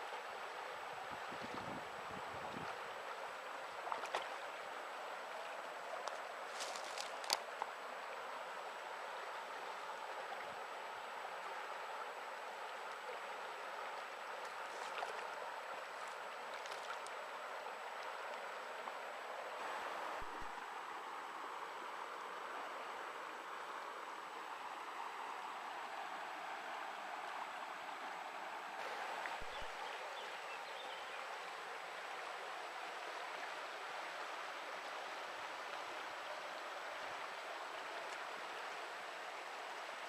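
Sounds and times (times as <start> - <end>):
river flowing over stones: 0.0 - 40.0.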